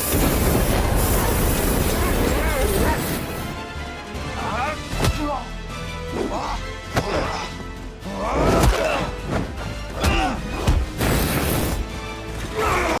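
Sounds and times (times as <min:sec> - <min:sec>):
loud rushing burst: 0:00.0 - 0:03.5
action film music: 0:00.0 - 0:13.0.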